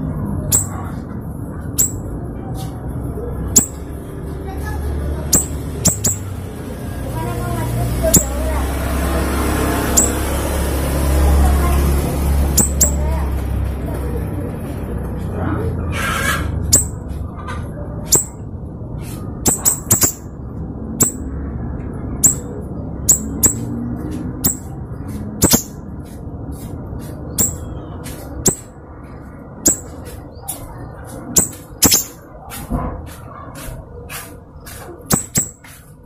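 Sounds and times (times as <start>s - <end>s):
bird calling high sharp notes: 0.5s - 0.8s, 1.8s - 2.1s, 3.6s - 3.8s, 5.3s - 6.4s, 9.9s - 10.3s, 12.6s - 13.1s, 16.7s - 17.0s, 18.1s - 18.4s, 19.5s - 20.3s, 21.0s - 21.2s, 22.2s - 22.5s, 23.1s - 23.8s, 25.4s - 25.8s, 27.4s - 27.8s, 29.7s - 30.0s, 31.4s - 32.2s, 35.1s - 35.6s.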